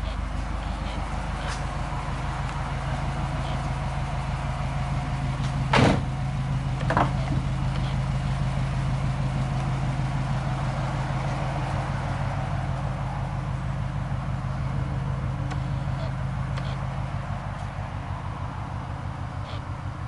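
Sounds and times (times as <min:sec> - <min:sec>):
car engine idling: 0:00.0 - 0:20.0
car door clacking open: 0:05.4 - 0:06.2, 0:06.8 - 0:07.9.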